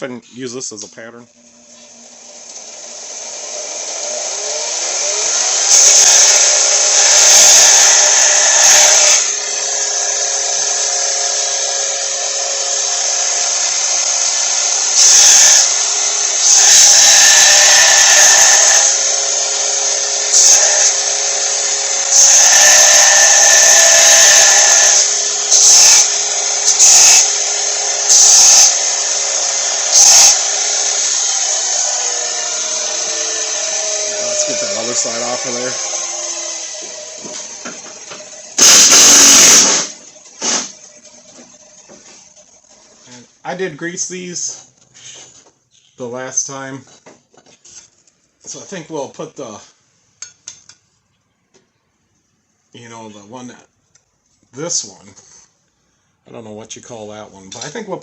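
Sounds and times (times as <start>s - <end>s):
belt sander motor running: 1.9s - 40.8s
steel rasping on sanding belt: 22.2s - 25.1s.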